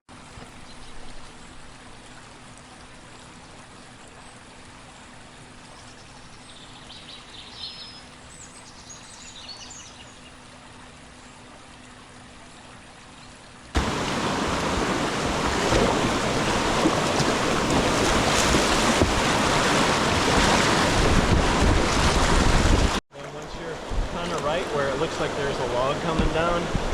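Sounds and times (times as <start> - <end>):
low water hiss: 0.1 - 26.9
whitewater rushing over rapids: 13.8 - 26.9.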